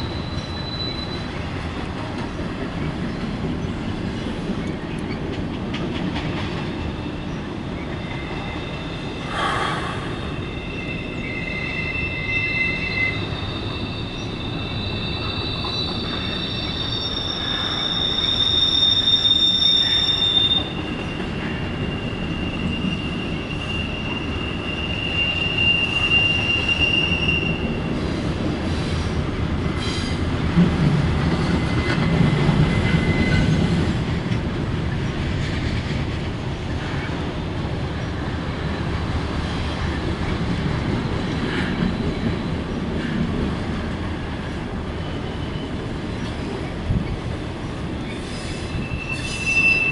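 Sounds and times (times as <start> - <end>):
steel wheel squeals: 0.0 - 1.4, 6.8 - 9.3, 10.2 - 28.1, 32.7 - 33.6, 48.1 - 49.9
freight train rumbling past: 0.0 - 49.9.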